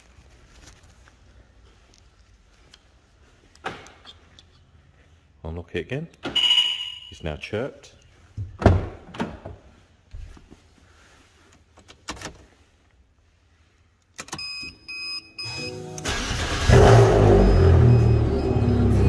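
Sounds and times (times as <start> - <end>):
short electronic beeps: 6.4 - 7.2, 14.4 - 15.8, 16.8 - 19.0
car engine cranking and running: 16.0 - 19.0.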